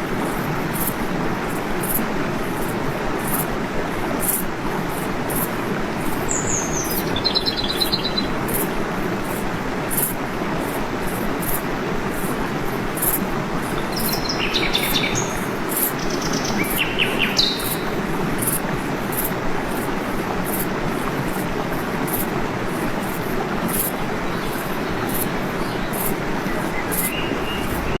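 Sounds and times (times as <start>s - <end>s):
waterfall rushing: 0.0s - 28.0s
birds chirping: 6.3s - 8.4s, 13.7s - 18.0s, 24.2s - 28.0s.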